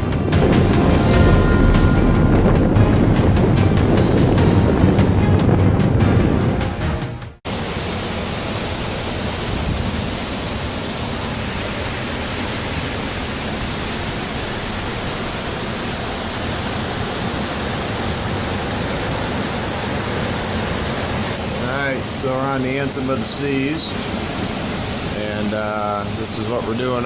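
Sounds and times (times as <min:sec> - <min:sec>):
strong storm wind rushing: 0:00.0 - 0:07.0.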